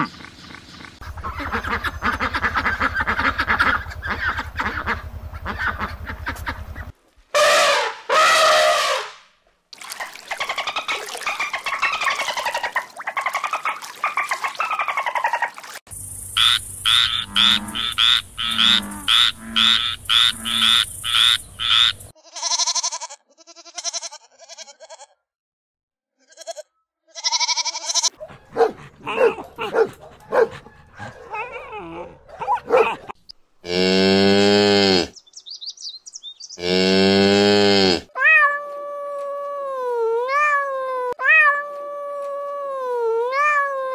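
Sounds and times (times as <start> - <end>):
frog croaking: 16.4 - 22.1.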